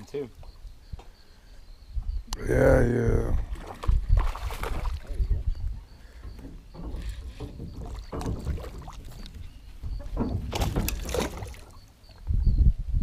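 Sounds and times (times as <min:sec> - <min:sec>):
low wind rumble: 0:00.6 - 0:11.4, 0:12.0 - 0:13.0
water splashing: 0:03.4 - 0:05.5, 0:06.8 - 0:12.1
fish thrashing at the surface: 0:03.5 - 0:05.1, 0:10.4 - 0:11.8.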